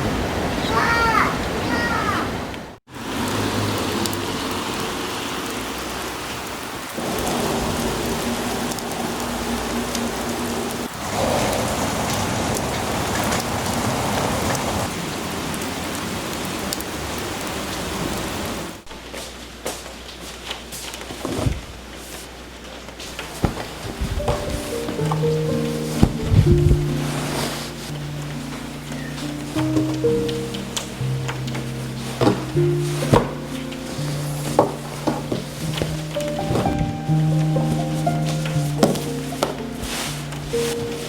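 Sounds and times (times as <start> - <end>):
steady rain falling: 0.0 - 41.0
water drips and taps: 23.2 - 27.0, 27.9 - 39.7.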